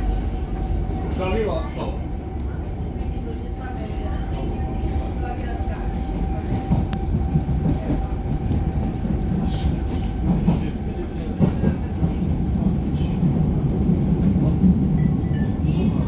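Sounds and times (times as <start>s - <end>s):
metro train rumbling on track: 0.0s - 16.0s.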